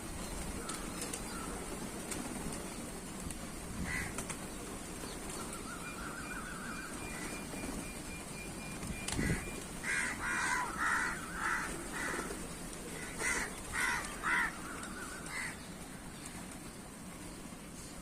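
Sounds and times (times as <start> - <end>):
crows cawing: 3.8 - 4.2, 9.2 - 15.7.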